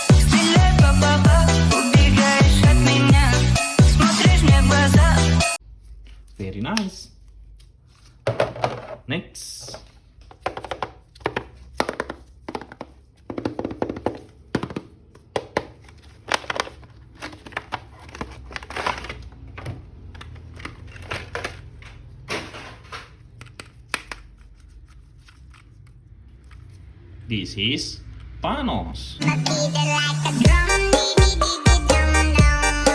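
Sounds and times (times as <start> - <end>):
plastic toy packaging clicks: 15.6 - 22.0, 23.1 - 26.7.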